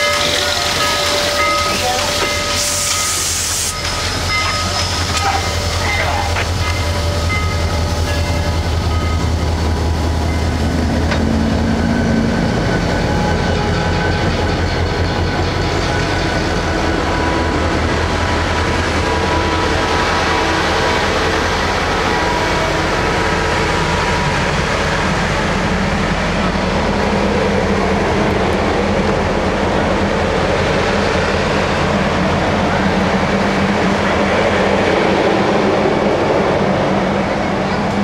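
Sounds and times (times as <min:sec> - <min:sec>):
clickety-clack of train wheels: 0:00.0 - 0:09.6, 0:10.2 - 0:36.0, 0:37.4 - 0:38.0
train wheels rumbling on rail: 0:00.0 - 0:38.0.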